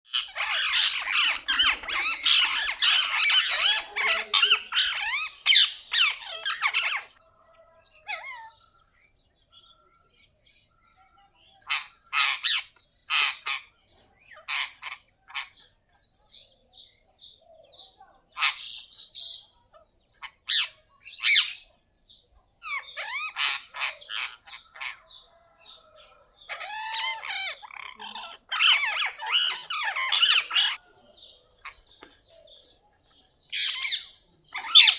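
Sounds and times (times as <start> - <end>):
parrots squawking: 0.1 - 7.2, 8.0 - 8.6, 11.7 - 15.6, 18.4 - 19.5, 20.2 - 21.7, 22.6 - 30.9, 33.5 - 34.9.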